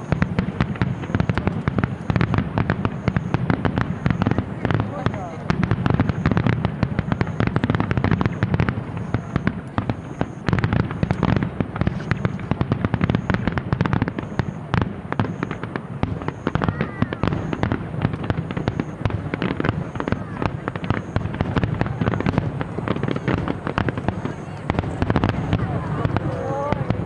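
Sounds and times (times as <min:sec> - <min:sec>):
fireworks bangs and crackles: 0:00.0 - 0:27.0.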